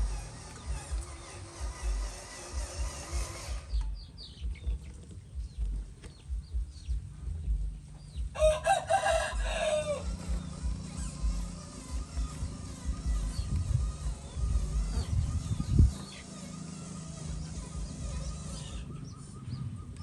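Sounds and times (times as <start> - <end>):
rooster crowing: 8.3 - 10.3.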